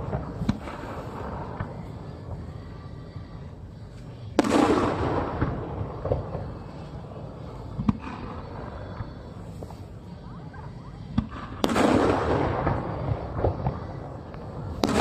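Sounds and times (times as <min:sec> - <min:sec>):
sharp firework cracks: 0:04.4 - 0:06.5, 0:11.2 - 0:15.0.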